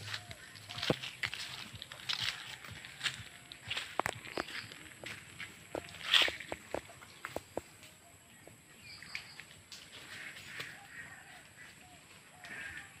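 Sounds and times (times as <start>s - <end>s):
faint bird chirps: 5.7s - 13.0s.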